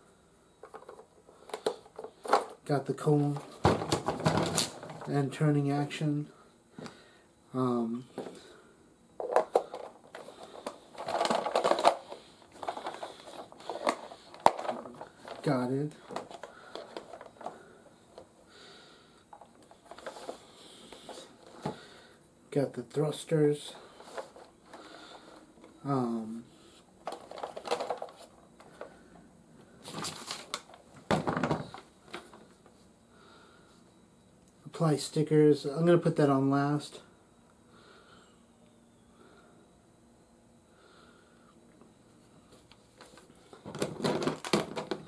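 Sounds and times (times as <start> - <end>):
plastic toy parts clicking and rattling: 9.2 - 17.5, 27.0 - 28.3.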